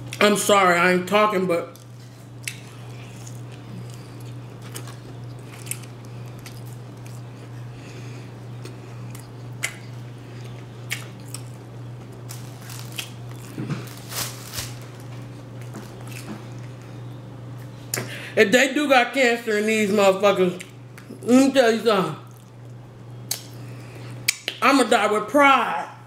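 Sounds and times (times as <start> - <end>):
steady low hum: 0.0 - 26.0
man chewing and lip-smacking: 1.8 - 13.6, 15.0 - 18.1, 20.6 - 21.3, 22.2 - 24.6.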